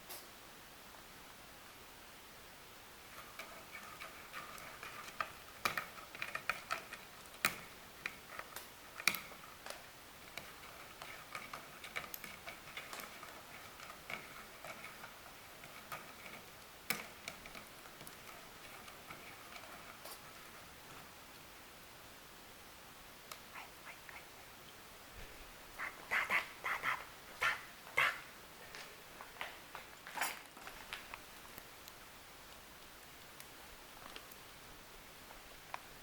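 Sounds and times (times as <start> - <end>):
cats chewing wet food: 3.0 - 21.5.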